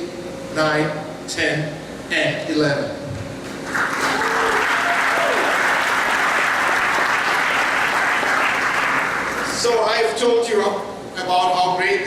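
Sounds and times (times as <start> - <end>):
audience applauding: 3.6 - 9.6.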